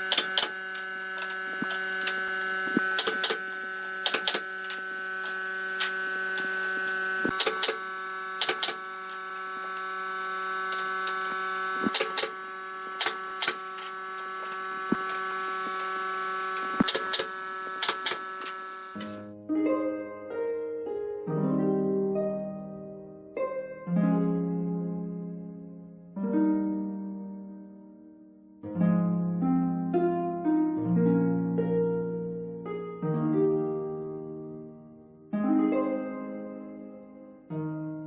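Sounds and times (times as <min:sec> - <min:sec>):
steady machine hum: 0:00.0 - 0:19.3
plucked harp-like music: 0:19.2 - 0:25.6, 0:26.2 - 0:27.6, 0:28.7 - 0:38.0.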